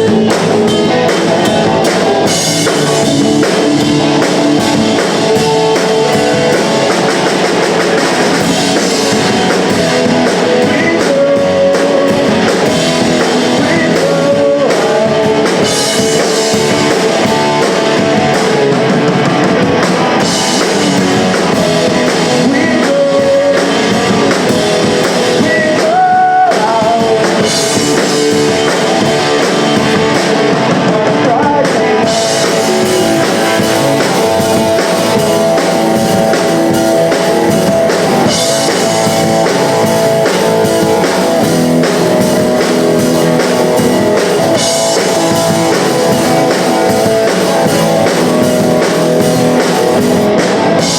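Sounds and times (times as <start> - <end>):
distorted electric guitars: 0.0 - 50.9
drum kit: 0.0 - 50.9
person singing: 0.0 - 50.9.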